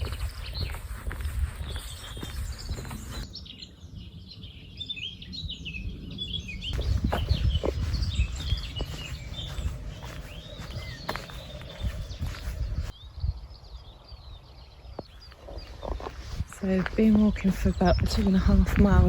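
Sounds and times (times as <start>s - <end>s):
songbirds chirping and singing: 0.0s - 19.0s
wind rumble on microphone: 0.0s - 19.0s.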